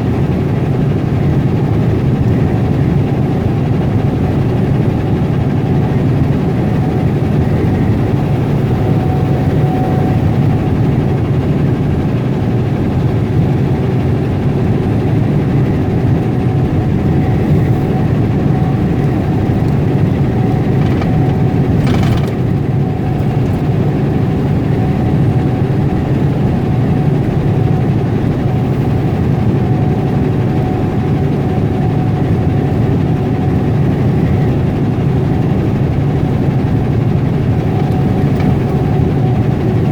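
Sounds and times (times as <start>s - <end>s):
truck diesel engine running: 3.5s - 26.8s
road noise: 18.8s - 23.6s.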